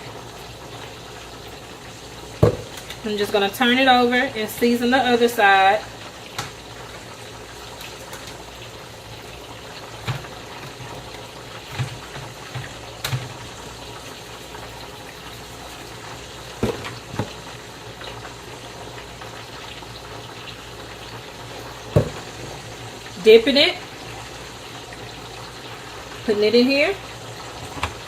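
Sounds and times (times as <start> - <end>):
chicken frying in oil: 0.0 - 28.0
water boiling in a pot: 0.0 - 28.0
kitchen knocks and taps: 2.4 - 3.0, 10.0 - 11.0, 11.7 - 13.4, 16.6 - 17.4, 21.9 - 22.6.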